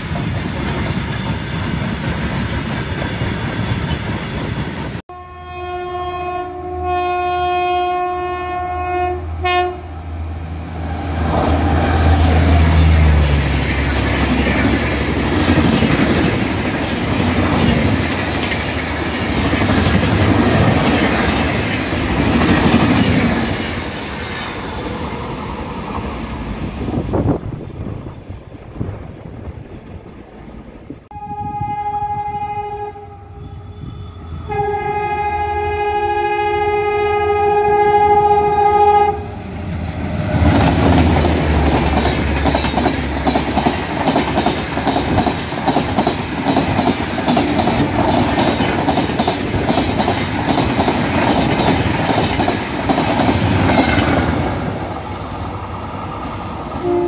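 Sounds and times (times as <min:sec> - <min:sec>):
freight wagons passing on rails: 0:00.0 - 0:05.0, 0:09.4 - 0:57.0
locomotive horn: 0:05.1 - 0:10.0, 0:31.1 - 0:39.4, 0:56.8 - 0:57.0
wheels clacking over rail joints: 0:11.2 - 0:24.6, 0:40.1 - 0:55.5.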